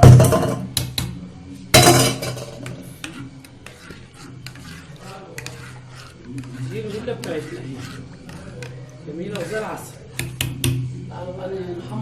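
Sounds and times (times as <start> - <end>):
metal cookware clanking: 0.0 - 0.7, 1.8 - 2.8.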